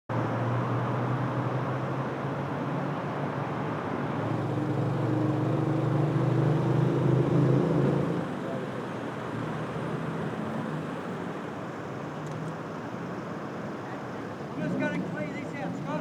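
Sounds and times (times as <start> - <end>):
vehicle engine humming: 3.7 - 16.0.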